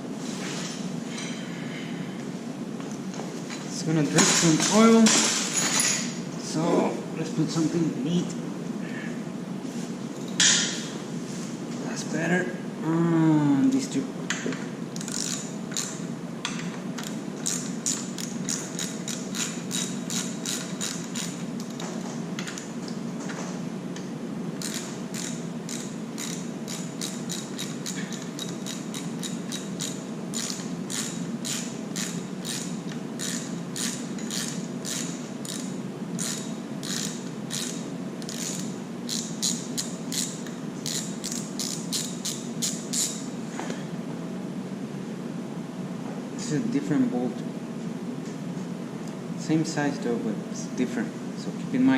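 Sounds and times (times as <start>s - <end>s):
steady low hum: 0.0s - 51.9s
ratchet wrench clicking: 15.0s - 16.0s, 17.0s - 21.8s, 24.6s - 43.2s.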